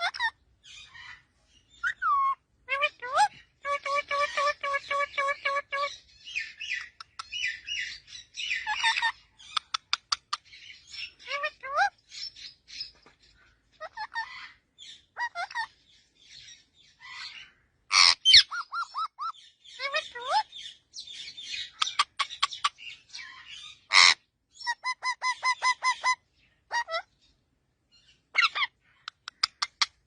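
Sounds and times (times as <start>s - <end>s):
parrot squawk: 0.0s - 1.2s, 1.8s - 6.0s, 8.5s - 10.4s, 11.0s - 12.0s, 13.8s - 14.6s, 15.2s - 15.7s, 17.0s - 20.5s, 21.7s - 27.1s, 28.3s - 30.0s
parrot chirping and whistling: 1.7s - 2.4s, 18.0s - 19.3s.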